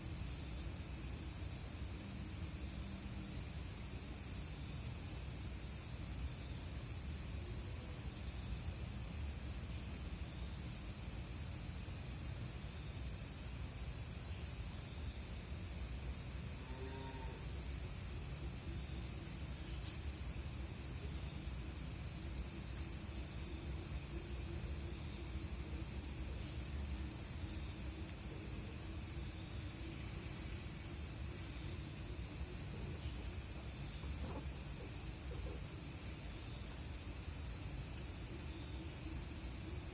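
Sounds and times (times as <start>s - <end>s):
insects trilling: 0.0s - 39.9s
insect quick chirps: 8.3s - 39.9s.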